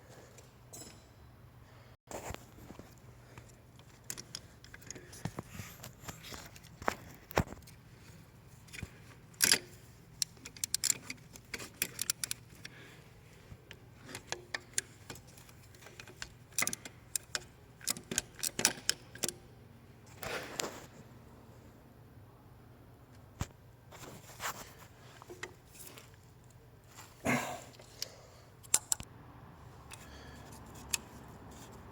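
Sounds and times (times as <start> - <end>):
clicks and clinks of parts: 0.4 - 1.2, 2.8 - 7.8, 8.6 - 12.8, 13.7 - 19.4, 27.7 - 29.1.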